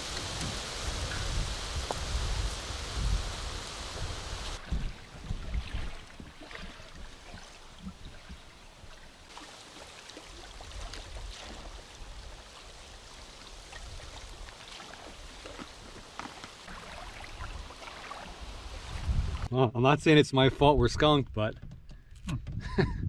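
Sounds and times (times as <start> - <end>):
light rain hissing: 0.0 - 4.6, 11.6 - 16.7.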